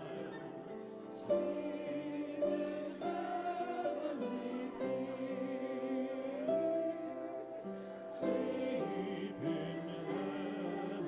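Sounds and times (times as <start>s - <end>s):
choir singing slow melody: 0.0s - 11.0s.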